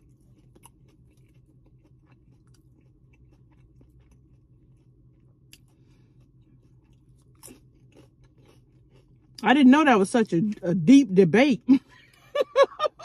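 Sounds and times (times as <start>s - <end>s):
faint chewing of food: 0.0s - 9.4s.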